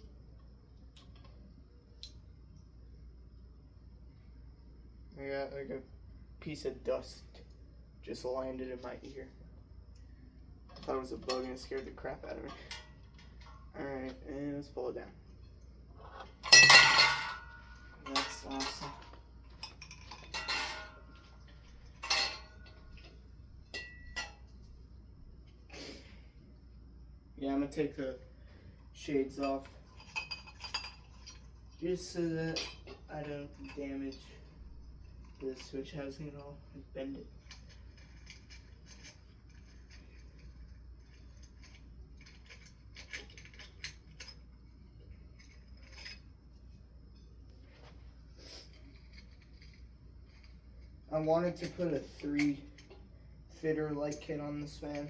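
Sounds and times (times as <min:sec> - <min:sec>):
low steady hum: 0:00.0 - 0:55.0
metal and glass clinks: 0:10.7 - 0:13.8, 0:15.4 - 0:24.7, 0:29.3 - 0:47.4, 0:48.7 - 0:53.1.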